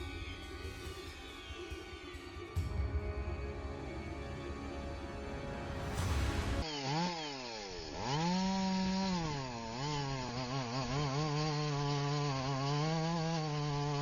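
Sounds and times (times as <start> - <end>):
chainsaw engine revving: 6.6 - 14.0.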